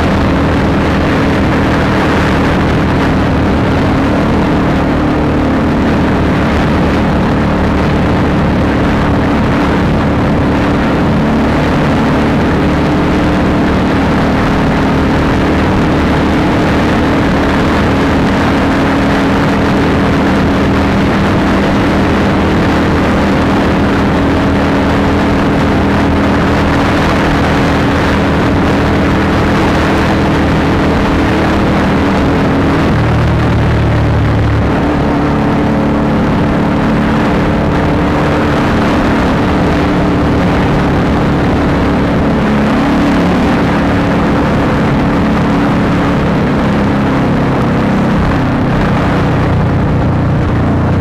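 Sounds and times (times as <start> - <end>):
motorcycle engine running: 0.0 - 51.0
rush of noise: 0.0 - 51.0.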